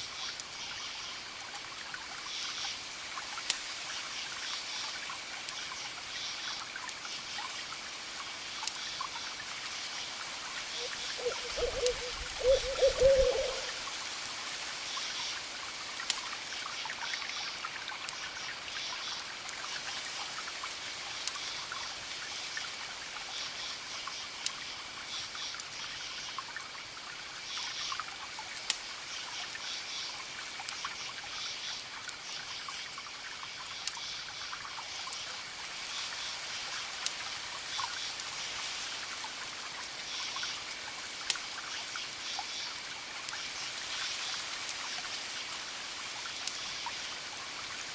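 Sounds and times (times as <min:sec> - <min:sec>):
campfire crackling and popping: 0:01.3 - 0:05.7, 0:06.5 - 0:08.9, 0:14.9 - 0:18.4, 0:19.0 - 0:21.5, 0:24.3 - 0:24.7, 0:28.1 - 0:29.0, 0:31.7 - 0:34.1, 0:35.9 - 0:38.4, 0:39.1 - 0:47.6
crickets chirping: 0:10.8 - 0:13.8.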